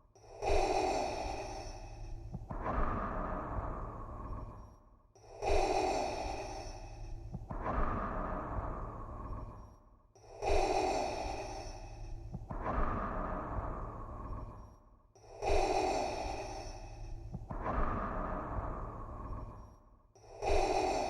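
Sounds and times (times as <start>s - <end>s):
steady low hum: 10.4s - 14.8s, 15.4s - 19.8s.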